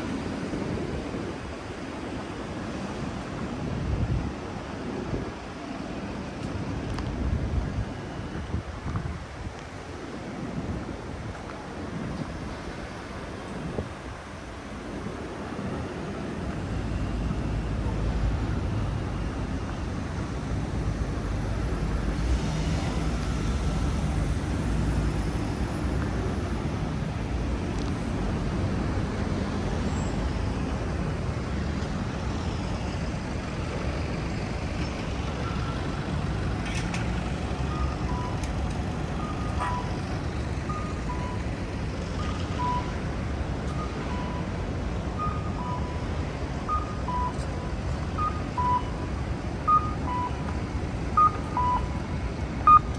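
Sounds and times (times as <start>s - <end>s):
city traffic rumble: 0.0s - 52.9s
crossing signal two-pitch tones: 51.2s - 51.9s.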